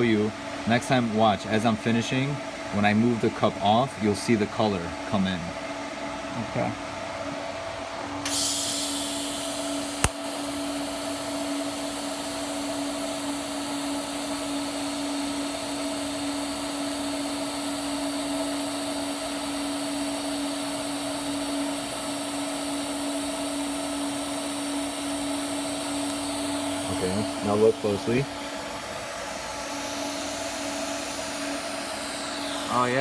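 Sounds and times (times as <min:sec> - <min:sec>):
welding arc buzzing: 0:08.3 - 0:33.0
sharp click: 0:10.0 - 0:10.2.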